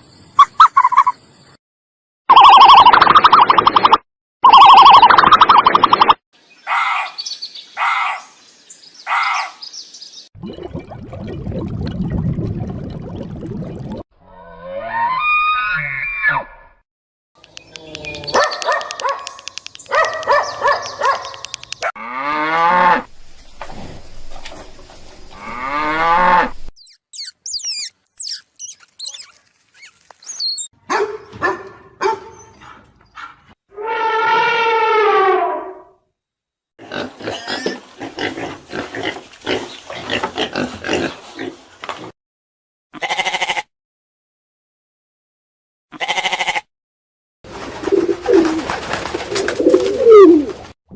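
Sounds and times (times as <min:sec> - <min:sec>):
long drawn-out animal call: 0:14.2 - 0:16.5, 0:33.7 - 0:35.8
high thin chirps: 0:26.8 - 0:30.7.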